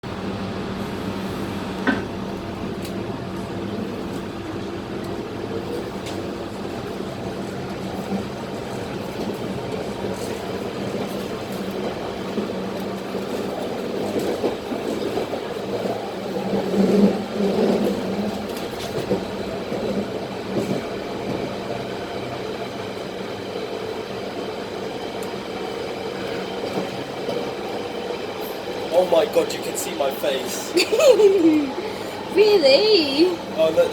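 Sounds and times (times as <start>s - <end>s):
train motor hum: 0.0s - 13.6s
wheels rumbling on rails: 0.0s - 33.9s.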